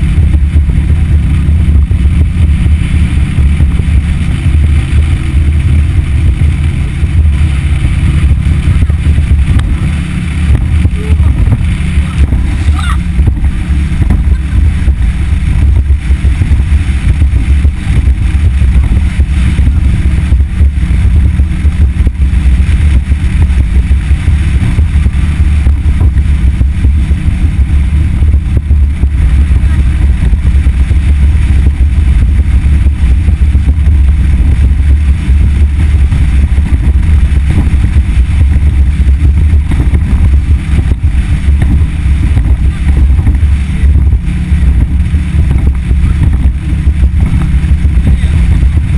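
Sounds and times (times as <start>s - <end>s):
motorboat engine rumble: 0.0s - 48.9s
wind buffeting microphone: 0.0s - 48.9s.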